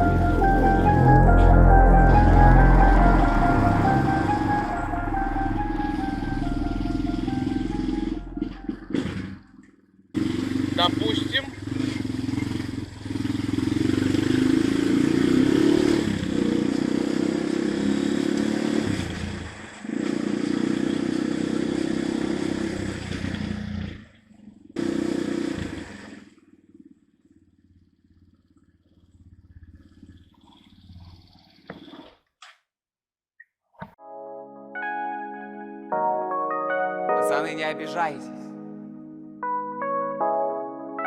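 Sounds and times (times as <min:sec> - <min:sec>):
dirt bike engine running: 0:07.0 - 0:09.6, 0:10.2 - 0:23.8, 0:24.6 - 0:30.9.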